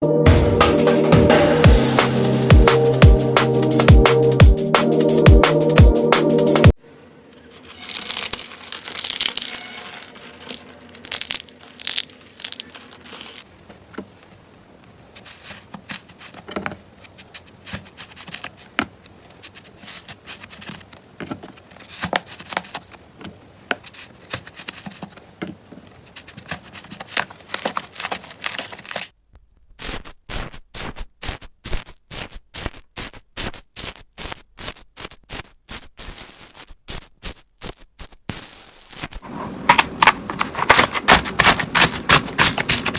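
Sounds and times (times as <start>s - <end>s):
slime crackling by hand: 7.6s - 13.5s, 26.0s - 29.2s, 36.0s - 42.9s
sharp pops: 29.8s - 42.9s.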